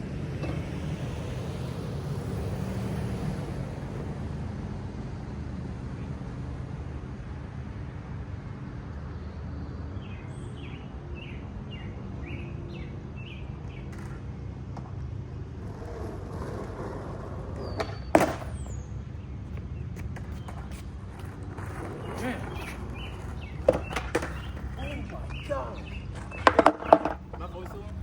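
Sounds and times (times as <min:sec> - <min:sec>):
low outdoor rumble: 0:00.0 - 0:28.0
skateboard deck clack on pavement: 0:00.2 - 0:04.2, 0:13.7 - 0:28.0
bird chirping: 0:21.7 - 0:28.0.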